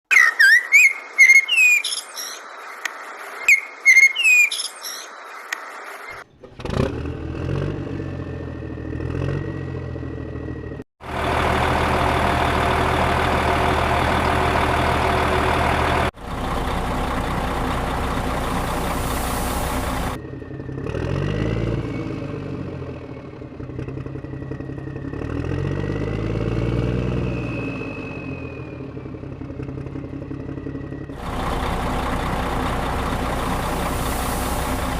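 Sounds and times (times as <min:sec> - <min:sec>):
high gliding whistle-like chirps: 0:00.1 - 0:06.2, 0:27.1 - 0:29.4
heavy diesel engines revving: 0:06.2 - 0:34.9.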